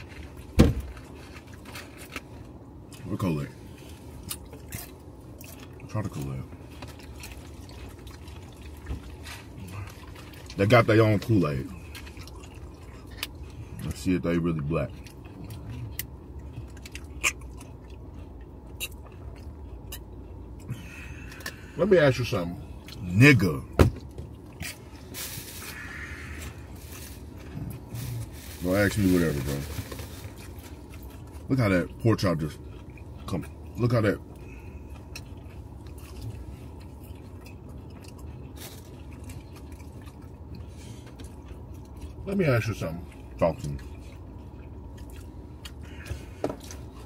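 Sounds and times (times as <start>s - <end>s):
car cabin rumble: 0.0s - 2.2s
person chewing: 0.0s - 5.9s, 6.5s - 10.6s, 11.2s - 13.9s, 14.9s - 21.8s, 29.7s - 42.2s, 43.0s - 47.0s
steady low hum: 0.0s - 47.0s.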